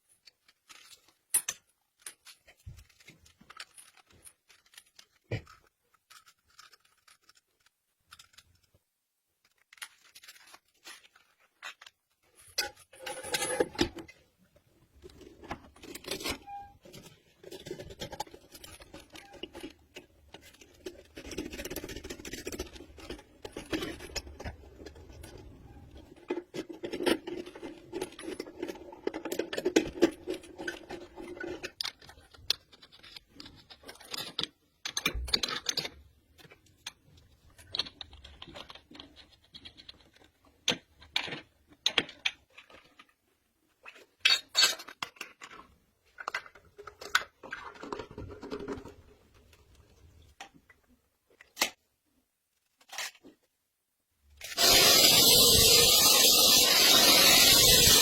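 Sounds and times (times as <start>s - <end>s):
tools scraping and clinking: 0.0s - 8.8s, 9.4s - 14.3s, 15.0s - 40.4s.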